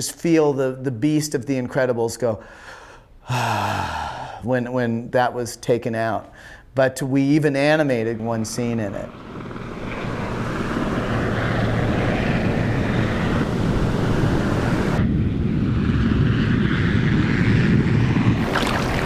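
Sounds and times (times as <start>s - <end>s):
jet engines rumbling: 7.6s - 19.0s.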